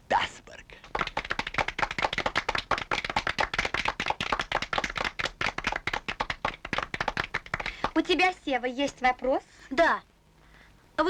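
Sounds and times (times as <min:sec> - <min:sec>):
small group clapping: 0:00.8 - 0:08.3.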